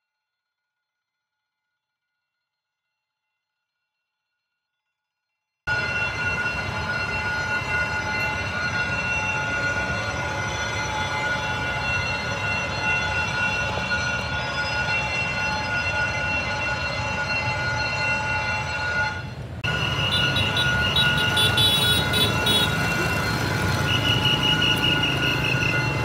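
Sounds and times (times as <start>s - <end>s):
pulsing high tones: 5.7s - 26.0s
train wheels squealing: 5.7s - 26.0s
wheels rumbling: 5.7s - 26.0s.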